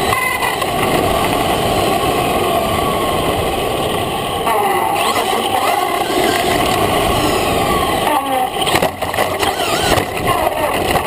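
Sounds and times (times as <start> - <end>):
tyre and ground noise: 0.0 - 11.0
electric motor whining: 4.5 - 10.7.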